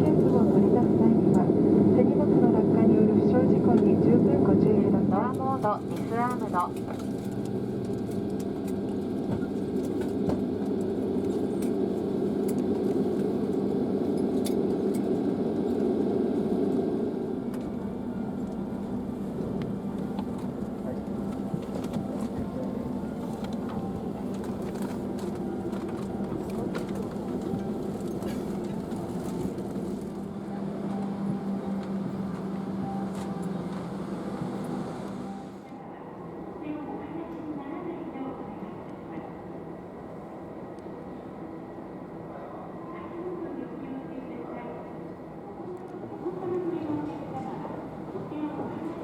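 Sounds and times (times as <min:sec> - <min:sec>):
vehicle interior drone: 0:00.0 - 0:35.7
jet airliner cabin noise: 0:00.0 - 0:49.0.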